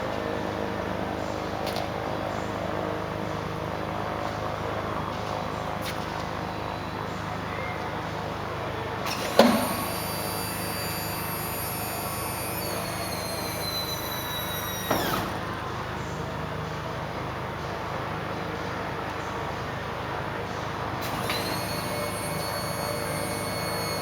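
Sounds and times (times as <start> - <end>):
hydraulic pump whine: 0.0 - 24.0
mechanical clunk: 9.0 - 15.6.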